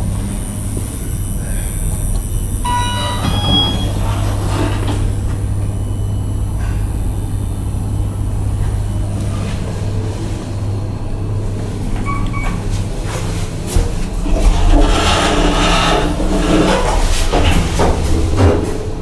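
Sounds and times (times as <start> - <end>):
elevator humming: 0.0 - 19.0
short electronic chime: 2.6 - 4.1.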